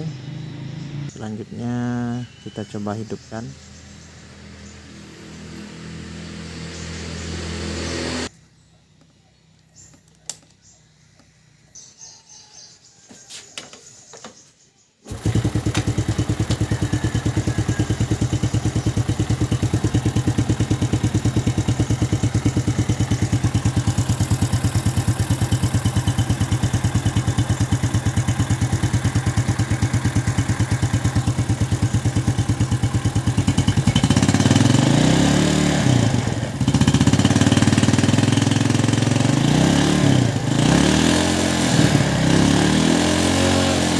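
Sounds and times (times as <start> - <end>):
engine revving: 0.0 - 1.6, 4.0 - 8.3, 15.1 - 43.9
motorcycle engine idling: 15.1 - 43.9.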